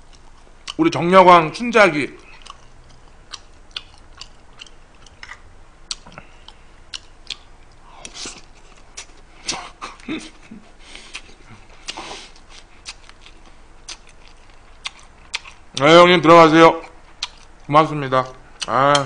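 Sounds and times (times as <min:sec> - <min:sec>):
man chewing food: 0:00.0 - 0:00.8, 0:02.2 - 0:15.8, 0:16.8 - 0:17.7
lip smacking: 0:02.2 - 0:15.8, 0:16.8 - 0:17.7
wet mouth clicks: 0:17.2 - 0:17.5.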